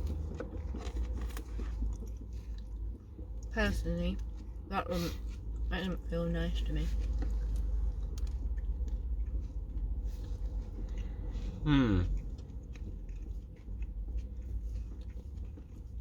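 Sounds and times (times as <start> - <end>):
person chewing food: 0.0 - 3.5, 4.2 - 6.1, 6.8 - 16.0
person humming mm: 11.6 - 12.1.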